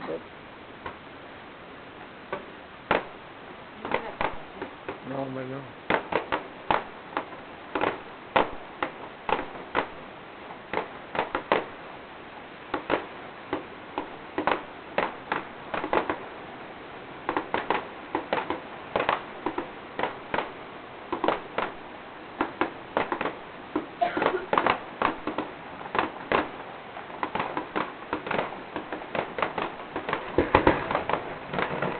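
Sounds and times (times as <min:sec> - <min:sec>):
fireworks bangs and crackles: 0:02.0 - 0:31.9.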